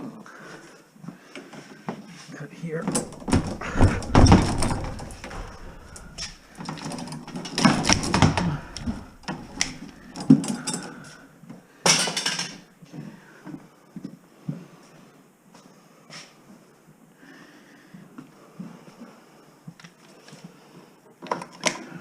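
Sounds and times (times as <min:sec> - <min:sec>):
wire knocks and clicks: 0:02.9 - 0:10.7.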